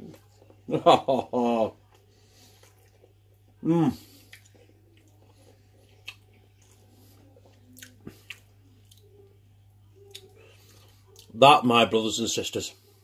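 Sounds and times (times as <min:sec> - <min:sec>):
person chewing: 0:01.8 - 0:09.4, 0:10.0 - 0:11.4.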